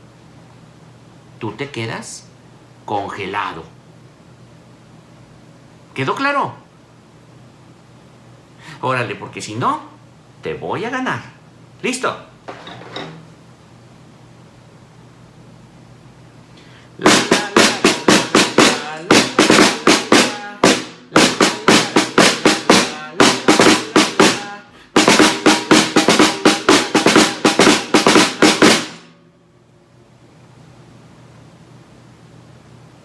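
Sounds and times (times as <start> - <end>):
snare drum beat: 17.0 - 29.1.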